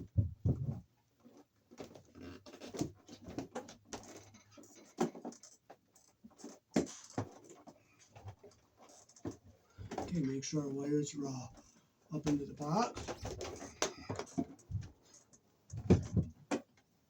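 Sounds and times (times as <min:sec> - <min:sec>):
wires clicking and scraping: 0:11.3 - 0:16.8.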